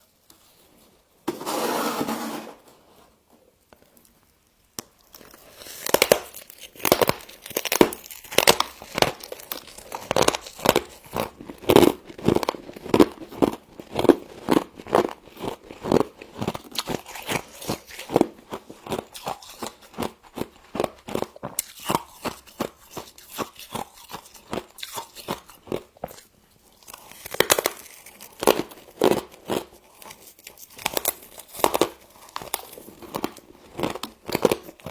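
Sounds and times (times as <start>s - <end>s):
rustling noise: 0.4s - 3.3s
crisp crunching of chewing frost: 3.8s - 34.9s.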